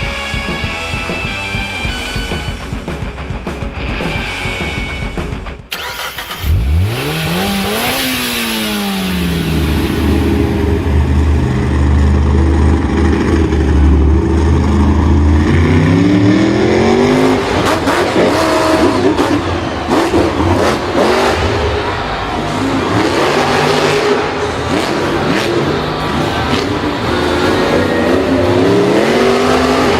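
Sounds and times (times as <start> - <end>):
engine revving: 0.0 - 29.9
engine knocks and clatter: 4.9 - 16.5.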